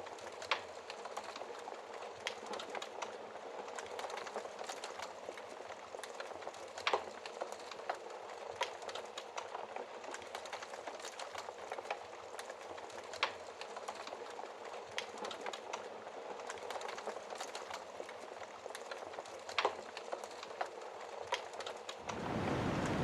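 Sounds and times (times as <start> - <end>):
wood fire crackling: 0.0 - 23.0
fire popping: 22.0 - 23.0.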